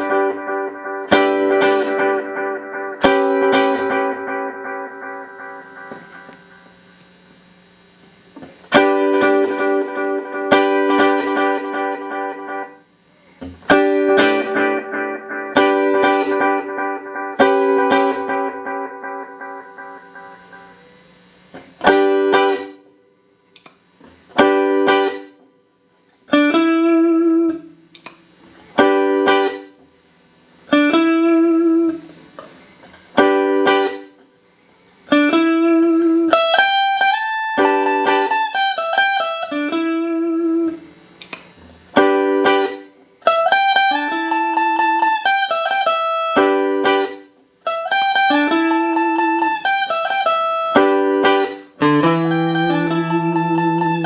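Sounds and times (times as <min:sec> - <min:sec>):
clean electric guitar chords with delay: 0:00.0 - 0:07.1, 0:08.7 - 0:12.8, 0:13.7 - 0:21.0, 0:35.1 - 0:40.8, 0:42.0 - 0:54.0.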